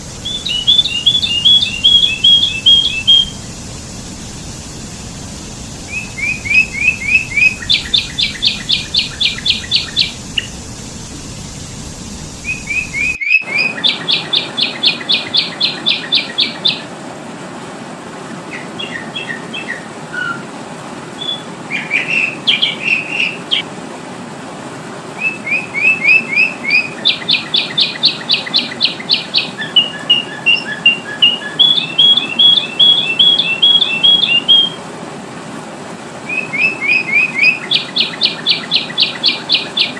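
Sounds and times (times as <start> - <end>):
bulbul chirping: 0.0 - 13.2
background hiss: 0.0 - 13.7.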